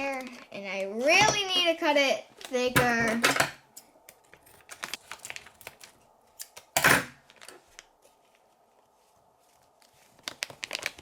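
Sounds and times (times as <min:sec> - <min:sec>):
rustling: 0:07.2 - 0:11.0.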